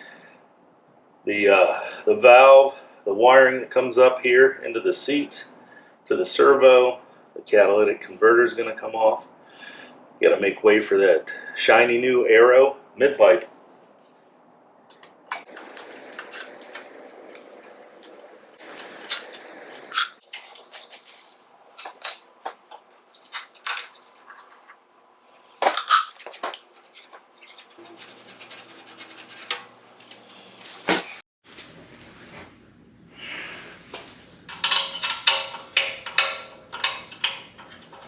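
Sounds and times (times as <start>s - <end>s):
hand tools clicking and scraping metal: 15.4s - 31.2s, 34.5s - 38.0s.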